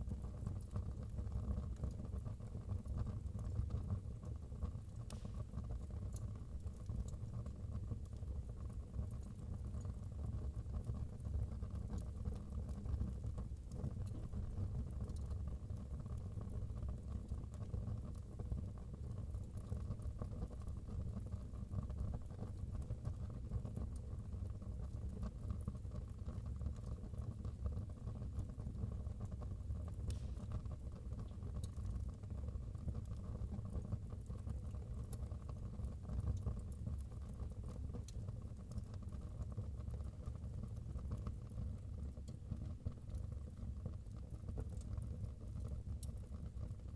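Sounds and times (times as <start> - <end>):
firewood crackling and popping: 4.2 - 8.3, 13.5 - 15.3, 29.9 - 32.0
fire low rumble: 29.1 - 32.6.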